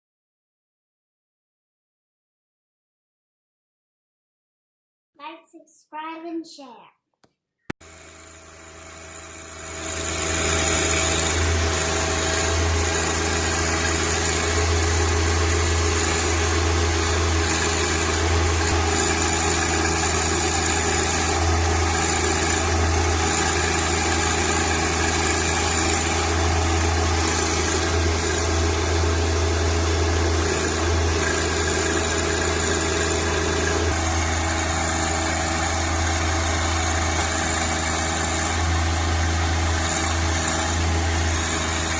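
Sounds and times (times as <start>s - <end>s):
tractor engine running: 9.5s - 41.9s.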